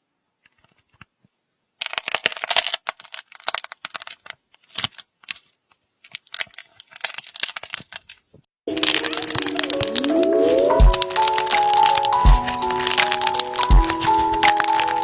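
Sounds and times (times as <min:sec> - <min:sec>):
music: 0:08.7 - 0:15.0.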